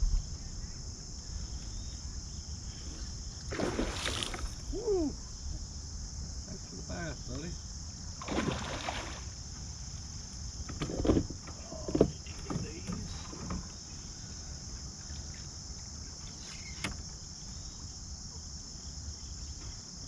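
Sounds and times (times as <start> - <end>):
low rumble: 0.0 - 3.4
high-pitched insect drone: 0.0 - 20.0
knocks and thumps from handling: 10.6 - 13.8.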